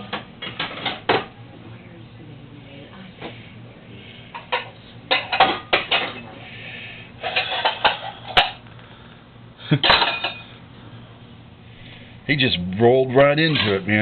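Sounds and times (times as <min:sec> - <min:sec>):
pots and pans clattering: 0:00.0 - 0:01.3, 0:04.3 - 0:06.3, 0:07.2 - 0:08.6, 0:09.8 - 0:10.6, 0:13.4 - 0:13.8.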